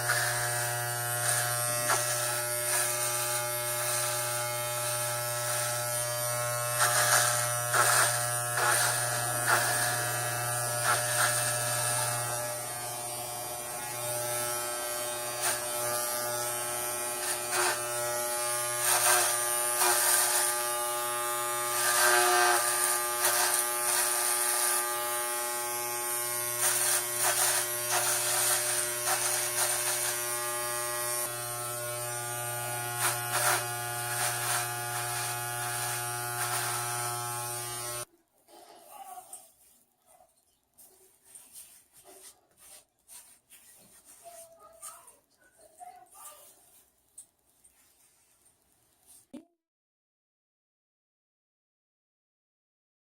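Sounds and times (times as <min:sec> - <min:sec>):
clippers rasping through hair: 0:00.0 - 0:38.1, 0:40.8 - 0:47.4
electric hair clippers buzzing: 0:00.0 - 0:38.1.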